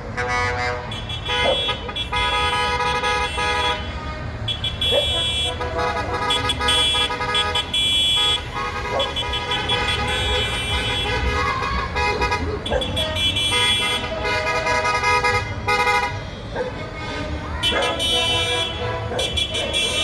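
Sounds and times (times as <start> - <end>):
tractor engines running: 0.0 - 20.0
tractor horns honking: 0.0 - 20.0.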